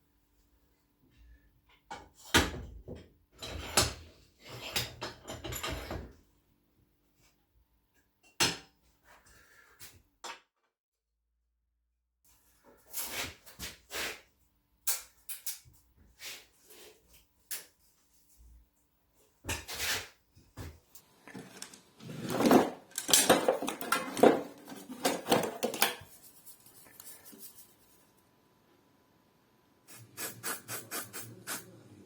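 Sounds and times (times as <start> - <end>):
objects clattering and scraping: 2.9 - 6.2, 19.5 - 26.9.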